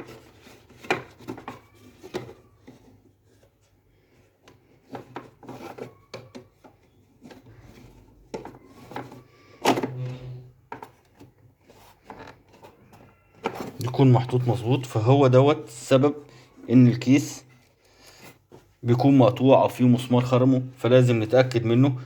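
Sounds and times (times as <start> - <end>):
plastic parts knocking and clacking: 0.0 - 10.0, 10.6 - 14.4.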